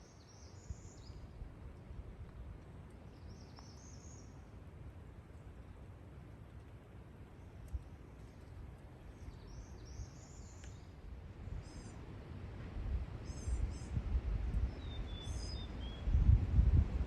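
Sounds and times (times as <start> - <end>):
songbirds chirping: 0.0 - 1.4, 2.3 - 4.6, 7.2 - 12.0, 13.2 - 16.1.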